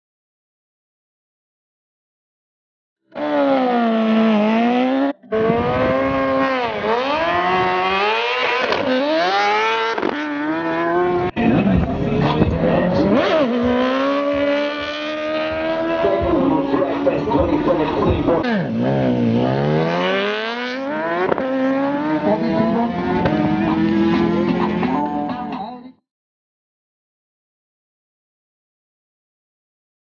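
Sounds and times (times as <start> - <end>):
racing engines revving: 3.1 - 25.0.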